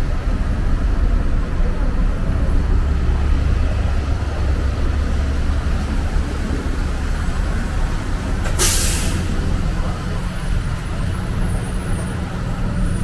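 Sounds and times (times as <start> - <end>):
vehicle engines rumbling: 0.0 - 13.0
short sharp hiss: 8.5 - 9.3.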